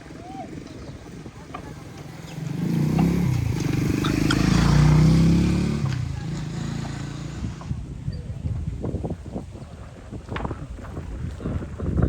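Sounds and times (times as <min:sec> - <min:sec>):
vehicle engine passing by: 0:01.8 - 0:07.8.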